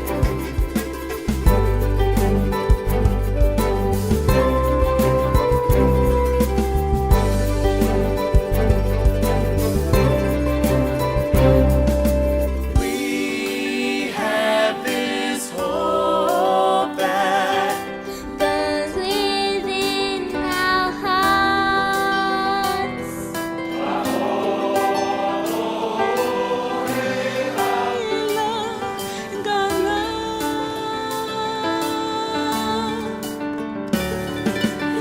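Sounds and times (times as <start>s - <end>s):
choir singing sacred song: 12.7s - 17.9s, 23.7s - 28.9s.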